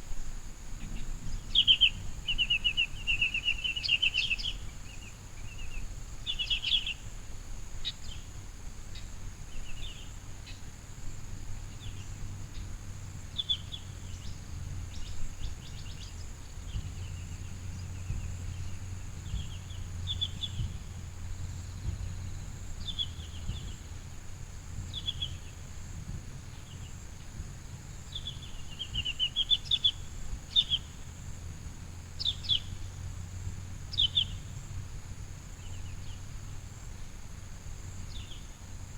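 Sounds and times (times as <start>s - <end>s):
steady high hiss: 0.0s - 38.9s
small birds chirping: 0.7s - 24.1s, 24.7s - 38.7s.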